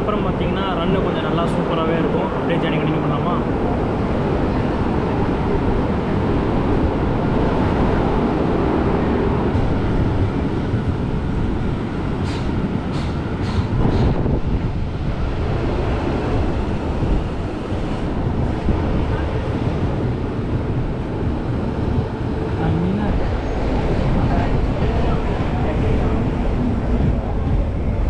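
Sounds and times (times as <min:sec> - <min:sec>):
train wheels rumbling on track: 0:00.0 - 0:28.0.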